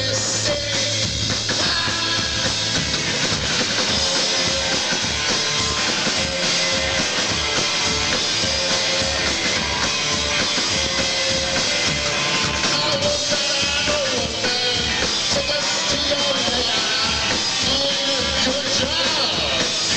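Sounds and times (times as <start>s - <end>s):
bass: 0.0s - 19.9s
drum-kit beat: 0.0s - 19.9s
electric guitars: 0.0s - 19.9s.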